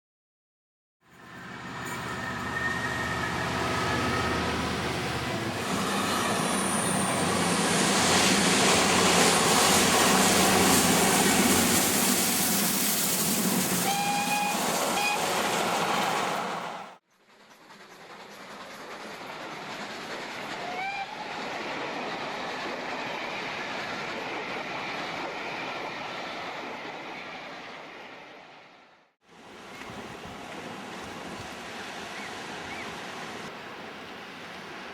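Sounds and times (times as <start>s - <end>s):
train rushing by: 1.1s - 34.9s.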